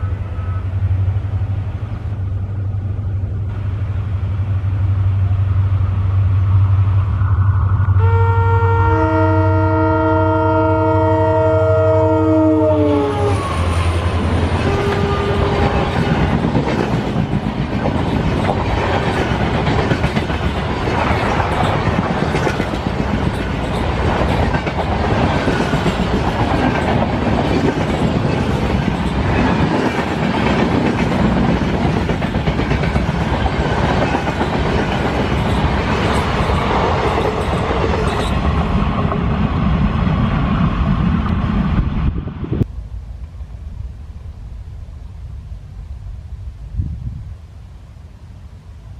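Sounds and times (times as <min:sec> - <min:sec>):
locomotive air horn blasts: 0:07.9 - 0:16.1
train wheels clattering over rail joints: 0:14.7 - 0:39.3.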